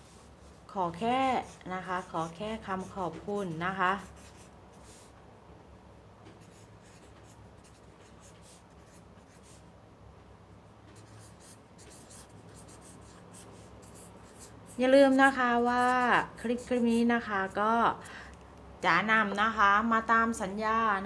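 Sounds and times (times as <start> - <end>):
pen scratching on paper: 0.9 - 5.1, 6.4 - 9.7, 11.0 - 17.1.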